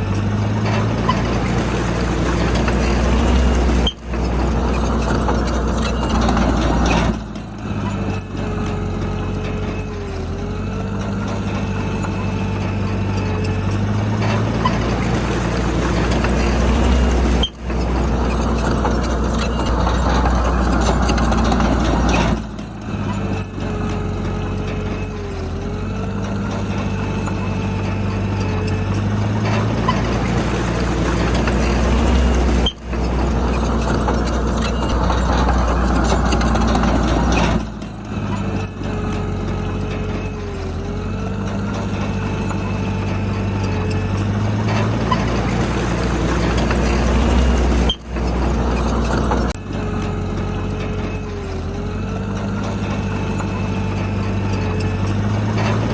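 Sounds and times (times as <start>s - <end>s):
heavy diesel engine under load: 0.0s - 55.9s.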